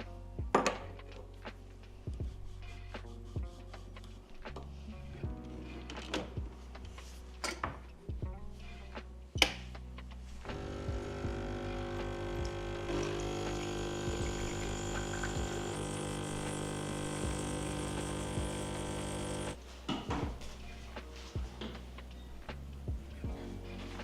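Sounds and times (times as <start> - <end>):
small electric motor humming: 10.5 - 19.6.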